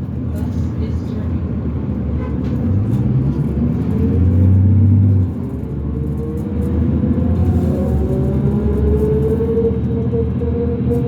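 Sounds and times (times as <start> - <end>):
bus diesel engine accelerating: 0.0 - 11.0.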